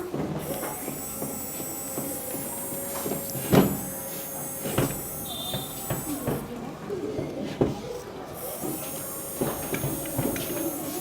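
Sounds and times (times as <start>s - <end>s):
small electric motor whining: 0.4s - 6.5s, 8.4s - 11.0s.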